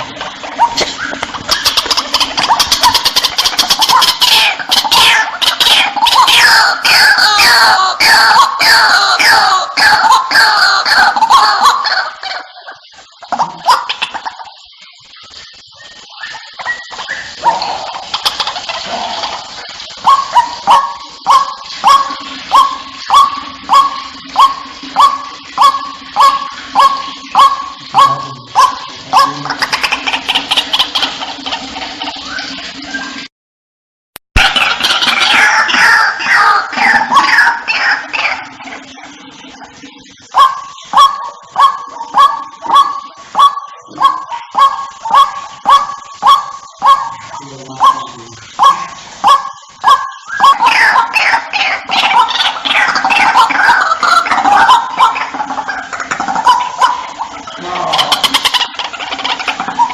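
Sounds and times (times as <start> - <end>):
bird calling harsh notes: 0.4 - 31.5, 40.0 - 59.9
bird harsh honking call: 16.8 - 31.2.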